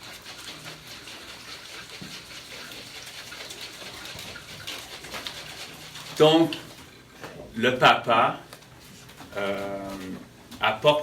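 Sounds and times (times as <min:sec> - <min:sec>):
water trickling: 0:00.0 - 0:07.0.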